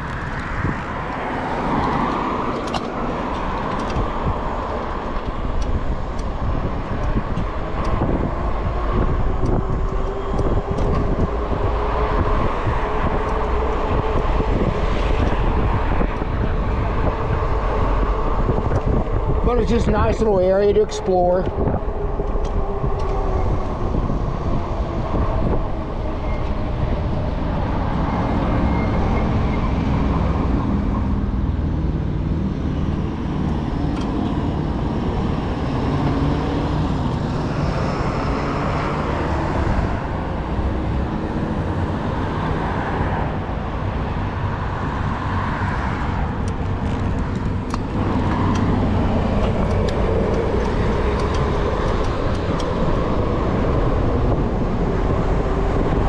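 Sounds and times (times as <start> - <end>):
motor vehicles passing: 0.0 - 56.0
street traffic rumble: 0.0 - 56.0.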